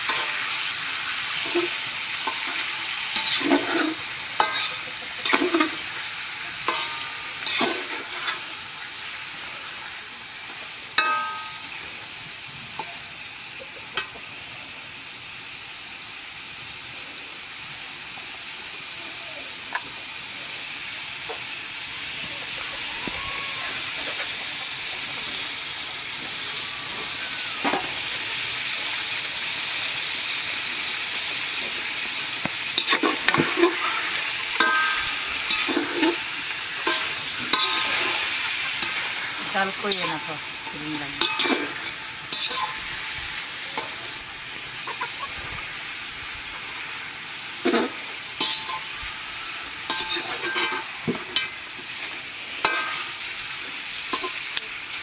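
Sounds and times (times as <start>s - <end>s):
food sizzling in hot oil: 0.0s - 55.0s
spoon scraping a pot: 3.2s - 5.8s, 41.2s - 42.8s.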